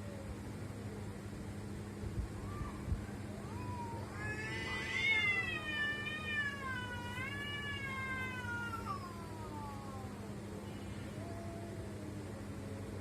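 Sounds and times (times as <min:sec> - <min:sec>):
cat yowling: 0:03.4 - 0:10.4.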